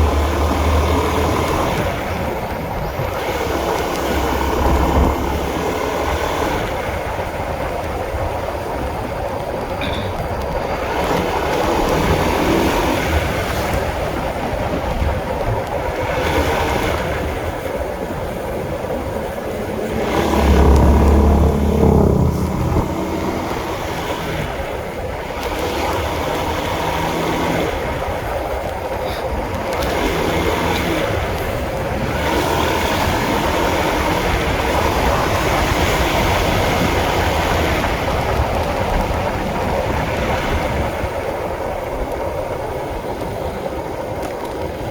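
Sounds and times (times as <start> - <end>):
motorcycle engine running: 0.0 - 44.9
wind noise on microphone: 0.0 - 44.9
low rumble: 18.2 - 25.1.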